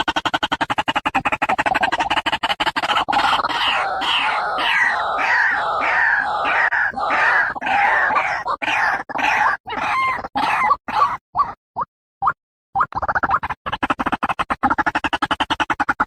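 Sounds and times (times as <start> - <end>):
waterhen harsh croaking calls: 1.0 - 11.6.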